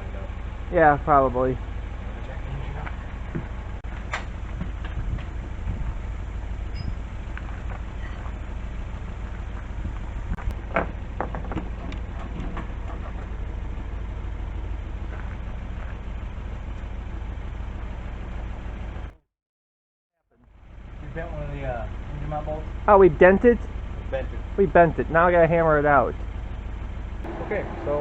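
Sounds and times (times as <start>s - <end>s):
metal knocks and clanks: 10.4s - 13.4s
steady low hum: 20.6s - 28.0s.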